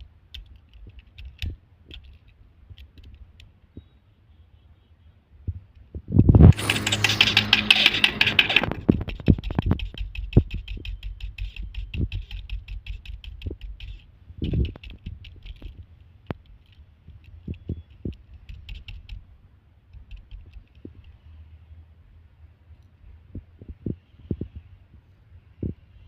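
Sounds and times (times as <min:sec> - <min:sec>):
hard disk clicks and ticks: 0:06.5 - 0:16.5, 0:17.3 - 0:19.2.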